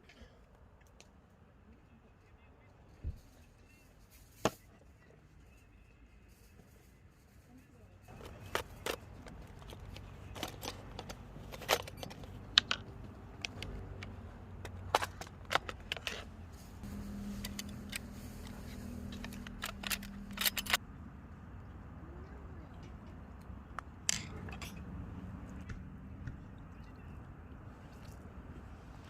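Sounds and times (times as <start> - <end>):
steady low hum: 8.1 - 29.0.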